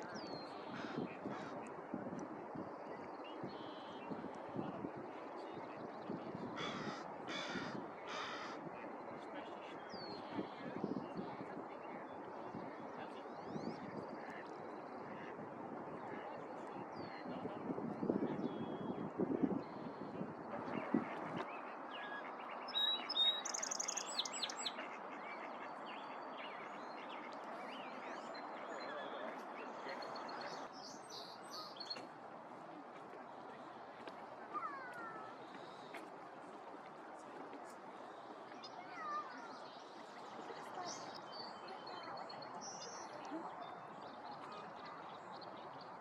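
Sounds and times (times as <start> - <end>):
small birds chirping: 21.9 - 24.9.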